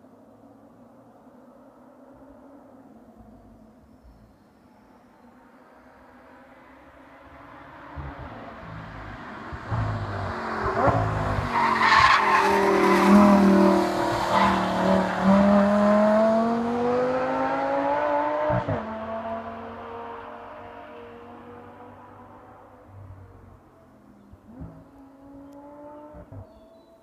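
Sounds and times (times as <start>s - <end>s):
sports car engine: 5.4s - 27.0s.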